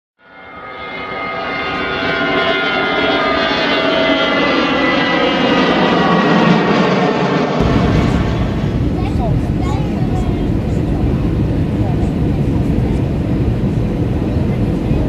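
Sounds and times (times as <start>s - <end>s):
jet engines humming: 0.2s - 15.0s
airflow rush in aircraft cabin: 1.6s - 15.0s
steady tones: 7.6s - 12.6s.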